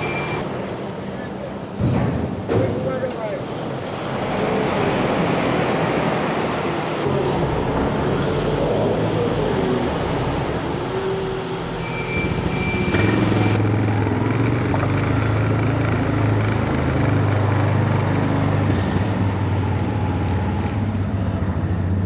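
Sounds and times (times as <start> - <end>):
hiss of wind: 7.0 - 13.6
vehicle engine running: 7.0 - 22.0.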